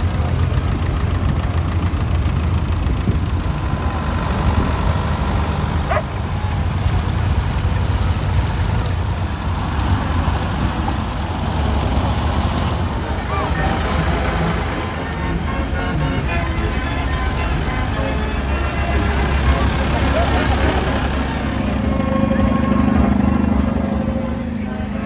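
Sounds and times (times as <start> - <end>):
tractor engine idling: 0.0 - 25.0.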